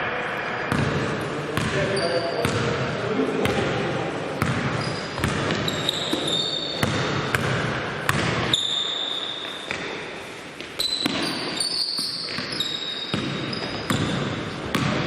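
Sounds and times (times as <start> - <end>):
basketball bouncing on court floor: 0.7 - 1.8, 2.4 - 2.8, 3.4 - 3.7, 4.4 - 8.7, 10.6 - 15.0
sneakers squeaking on floor: 1.6 - 2.7, 4.4 - 7.5, 8.1 - 15.0.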